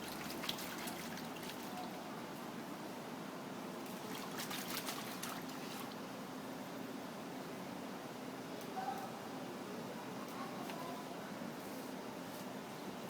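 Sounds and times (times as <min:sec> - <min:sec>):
water trickling and splashing: 0:00.0 - 0:02.2, 0:03.8 - 0:06.0.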